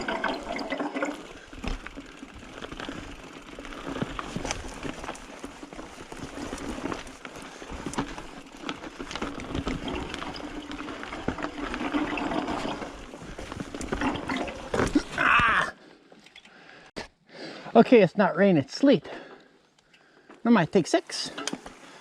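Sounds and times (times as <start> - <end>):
bike clicks and rattles: 0.0 - 15.6, 21.3 - 21.9
bike tyres on dirt: 0.0 - 16.0.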